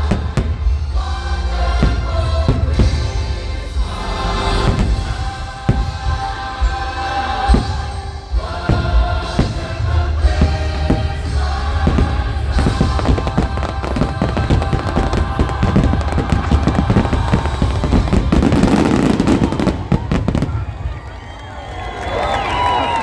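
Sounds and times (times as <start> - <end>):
fireworks booming and crackling: 0.0 - 0.9, 1.7 - 3.2, 4.4 - 6.7, 8.7 - 21.3
music soundtrack: 0.0 - 21.4.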